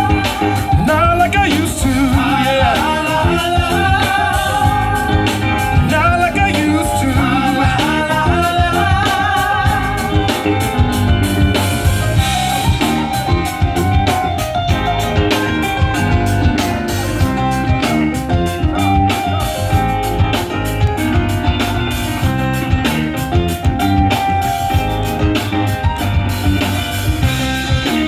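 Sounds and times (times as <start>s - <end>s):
person singing: 0.0s - 11.1s
drum kit beat: 0.0s - 28.0s
live band playing: 0.0s - 28.0s.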